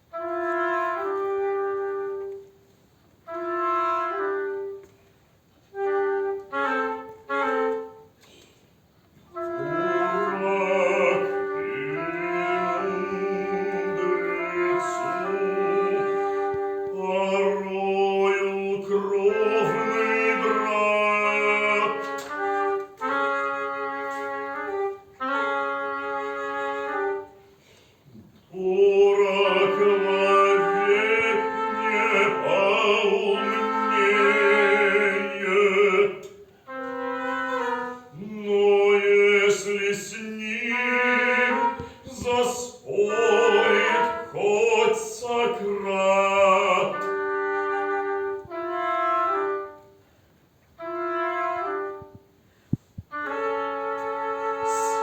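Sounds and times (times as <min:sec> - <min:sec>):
oboe flute and bassoon playing: 0:00.0 - 0:08.4, 0:09.2 - 0:55.0.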